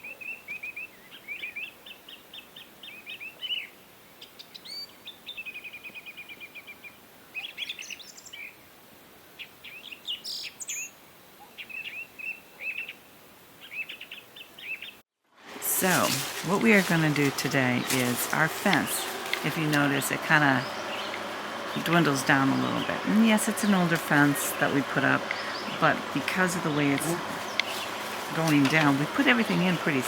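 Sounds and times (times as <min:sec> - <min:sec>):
faint outdoor background noise: 0:00.0 - 0:30.0
songbirds chirping and singing: 0:13.6 - 0:15.0, 0:15.7 - 0:30.0.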